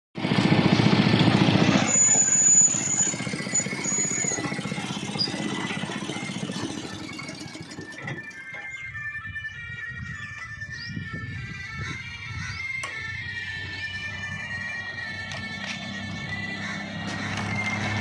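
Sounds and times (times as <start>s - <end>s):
engine running: 0.2s - 18.0s.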